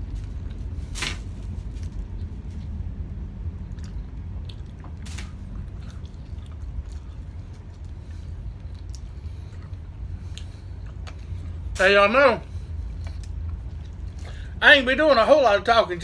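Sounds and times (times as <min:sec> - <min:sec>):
low hum: 0:00.0 - 0:16.0
chewing and biting food: 0:03.6 - 0:11.6.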